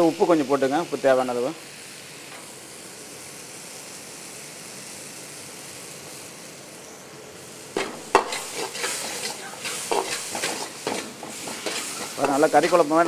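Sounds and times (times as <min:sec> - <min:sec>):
masala sizzling in a wok: 0:00.0 - 0:13.0
steel ladle scraping a pan: 0:07.8 - 0:12.9.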